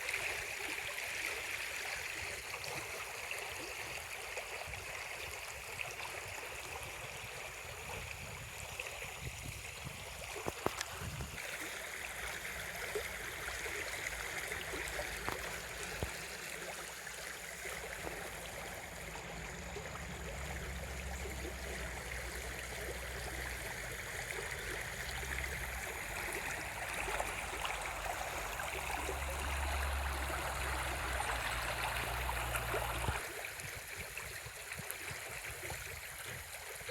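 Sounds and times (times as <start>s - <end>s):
running water rushing: 0.0s - 36.9s
low rumble: 18.5s - 33.2s.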